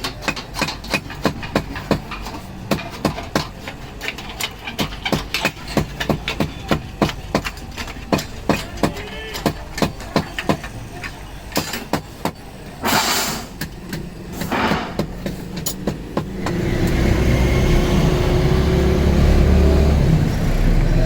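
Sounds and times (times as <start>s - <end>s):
sharp taps and knocks: 0.0s - 13.0s, 13.6s - 17.0s
motor running with low rumble: 16.3s - 21.0s.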